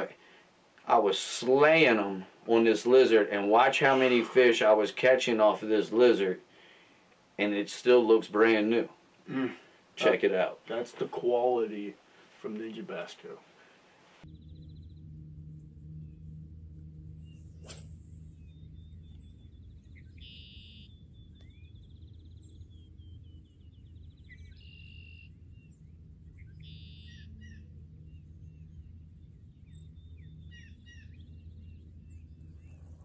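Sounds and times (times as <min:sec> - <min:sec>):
songbirds chirping and trilling: 0:00.0 - 0:33.0
steady low hum: 0:00.0 - 0:33.0.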